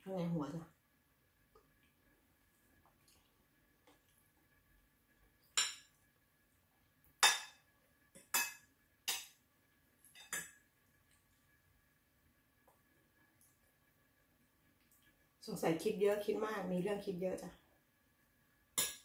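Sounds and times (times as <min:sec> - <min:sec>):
cutlery clinking against dishes: 0:05.6 - 0:05.9, 0:07.2 - 0:07.6, 0:08.2 - 0:09.4, 0:10.1 - 0:10.6, 0:18.8 - 0:19.0.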